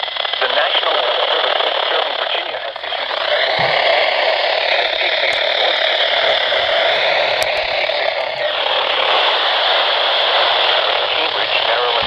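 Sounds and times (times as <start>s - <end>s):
radio static hiss: 0.0s - 12.0s
faint announcer voice: 0.4s - 12.0s.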